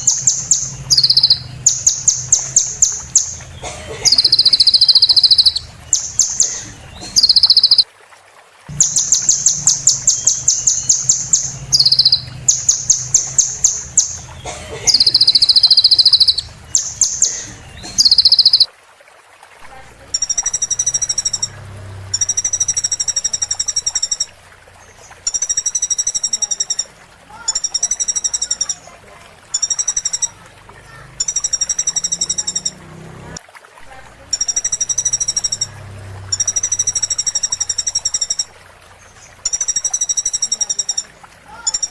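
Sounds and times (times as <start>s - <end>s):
buzzy bird phrase: 0.0s - 7.9s, 8.7s - 18.7s
songbird trills and whistles: 0.0s - 7.9s, 8.8s - 18.7s.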